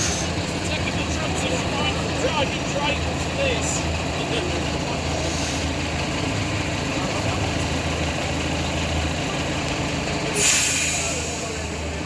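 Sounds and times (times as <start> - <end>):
diesel locomotive engine idling: 0.0 - 12.0
loud hiss: 10.4 - 11.9.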